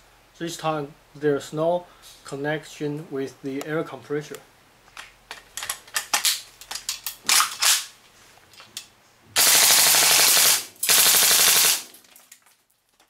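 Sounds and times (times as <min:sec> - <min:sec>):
airsoft rifle firing bursts: 0:09.4 - 0:12.0.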